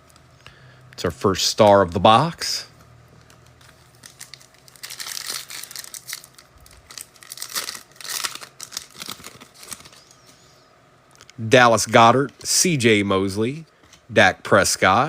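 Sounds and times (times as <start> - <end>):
wrapper crinkling and tearing: 3.3 - 10.1.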